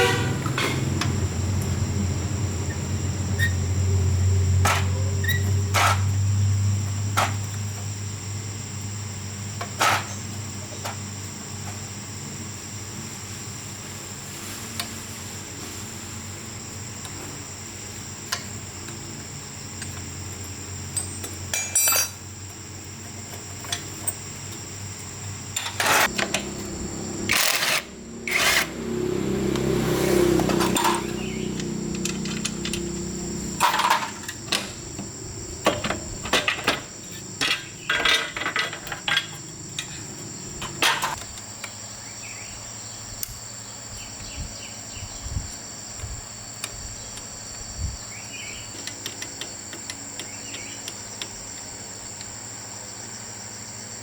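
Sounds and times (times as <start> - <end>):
low rumble of work noise: 0.0 - 41.4
insect chirping: 0.0 - 54.0
metallic clicks of hand tools: 30.7 - 33.0.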